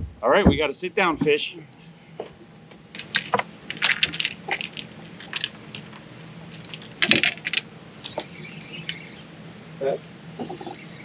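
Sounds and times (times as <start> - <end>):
faint steady hum: 0.0 - 11.0
fishing gear clicking and rattling: 3.0 - 9.0.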